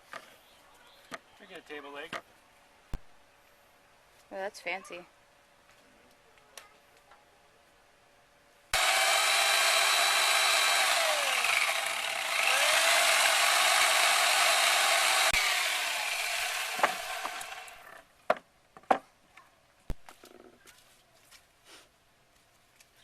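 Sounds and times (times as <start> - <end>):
electric chainsaw cutting wood: 8.8 - 17.9.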